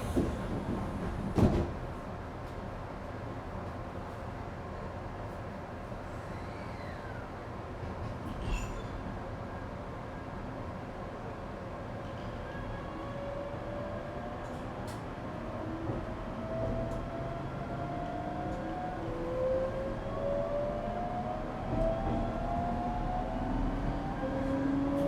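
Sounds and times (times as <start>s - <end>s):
train running rumble: 0.0s - 2.7s.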